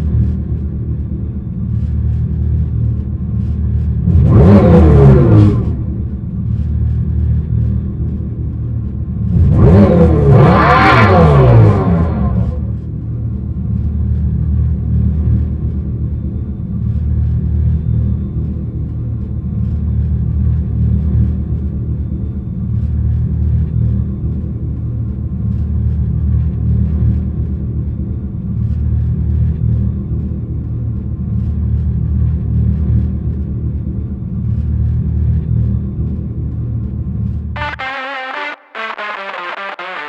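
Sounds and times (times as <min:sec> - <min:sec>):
deep steady rumble: 0:00.0 - 0:10.6.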